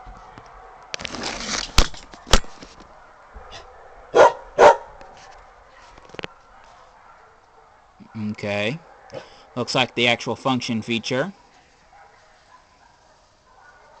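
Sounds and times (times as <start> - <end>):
rustling: 1.0 - 3.0
dog barking: 2.9 - 9.8, 11.5 - 14.0.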